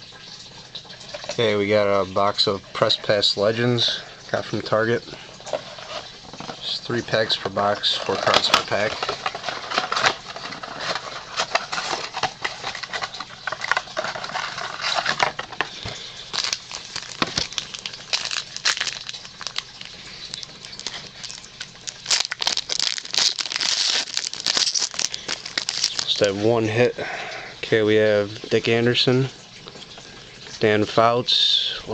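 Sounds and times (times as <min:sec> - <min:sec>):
foil pack crinkling: 0:05.2 - 0:26.5.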